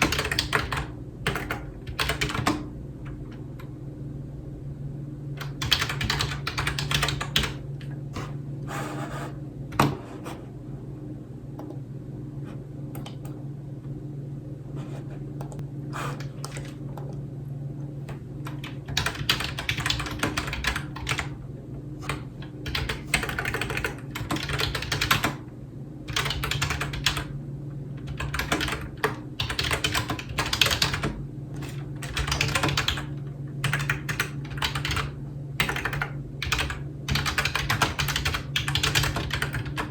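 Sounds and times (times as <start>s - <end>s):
typing on computer keyboard: 0.0s - 2.7s, 5.4s - 7.6s, 18.5s - 21.3s, 22.0s - 25.4s, 26.1s - 27.3s, 28.0s - 39.9s
steady low hum: 0.0s - 39.9s.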